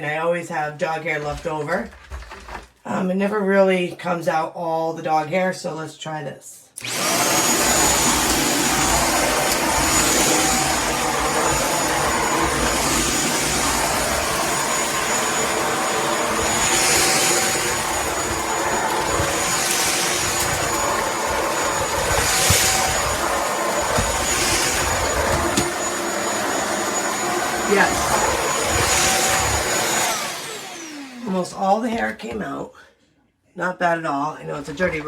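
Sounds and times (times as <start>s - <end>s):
stick vacuum running on rug: 6.8s - 31.4s.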